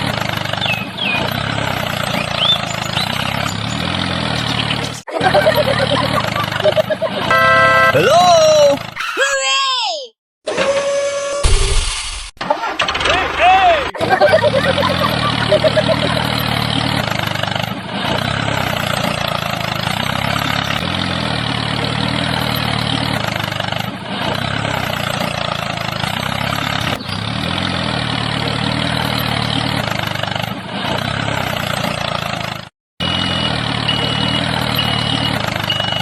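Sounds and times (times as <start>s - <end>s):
tractor engine idling: 0.0s - 5.0s, 7.3s - 8.9s, 15.0s - 36.0s
short high beeps: 7.3s - 8.1s.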